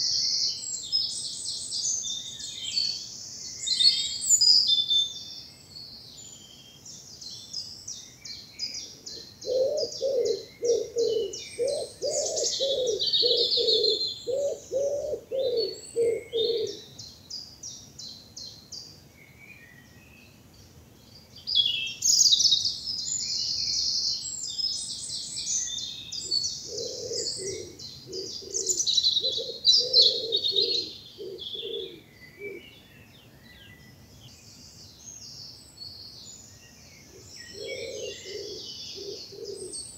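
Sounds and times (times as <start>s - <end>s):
songbirds chirping and trilling: 0.0s - 39.9s
pigeon cooing: 9.4s - 16.8s, 26.6s - 32.6s, 37.6s - 39.8s.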